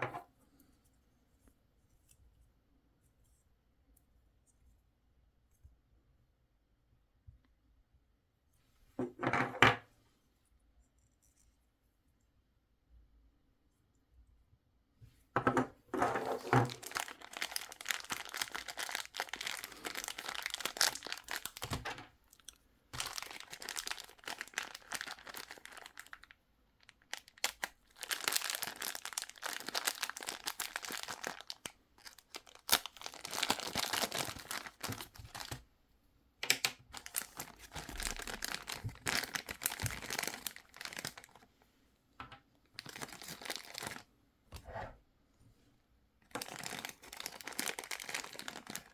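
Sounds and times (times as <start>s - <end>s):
plastic packaging crinkling: 16.3s - 35.6s, 36.4s - 41.4s, 42.8s - 44.1s, 46.3s - 48.9s.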